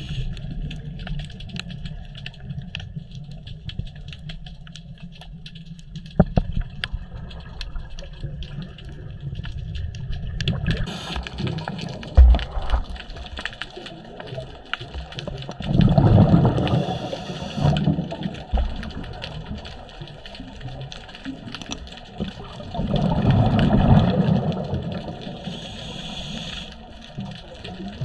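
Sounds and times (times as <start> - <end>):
faint clicking: 0.0 - 28.0
underwater exhaust bubbles rushing: 6.2 - 28.0.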